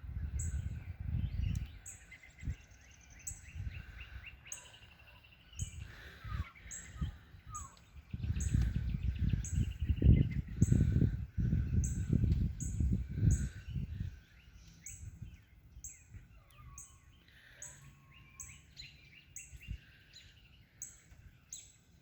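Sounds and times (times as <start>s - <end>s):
low rumble on microphone: 0.0s - 4.4s, 5.6s - 16.7s
small birds chirping and trilling: 0.0s - 22.0s.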